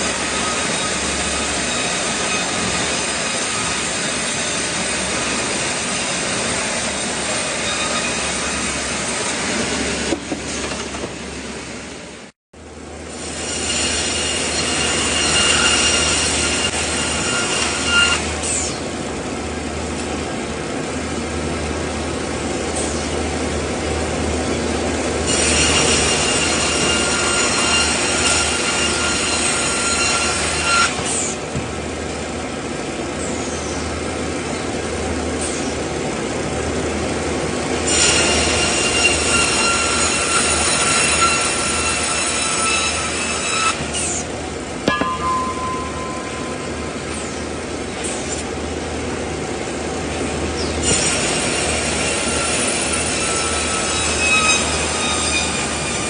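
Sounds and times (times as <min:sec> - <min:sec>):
saw whining cutting wood: 0:00.0 - 0:10.1, 0:13.1 - 0:18.9, 0:25.2 - 0:31.4, 0:37.8 - 0:44.3, 0:50.6 - 0:56.0
sawmill machinery running: 0:00.0 - 0:56.0.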